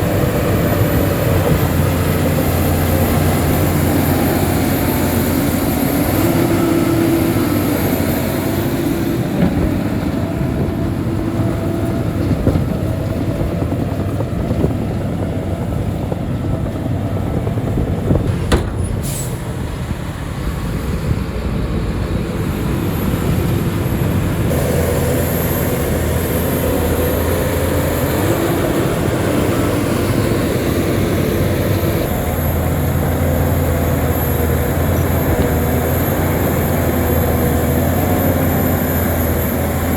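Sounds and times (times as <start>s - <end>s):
bulldozer diesel engine running: 0.0s - 39.9s
metallic clanks and squeals: 18.2s - 19.6s.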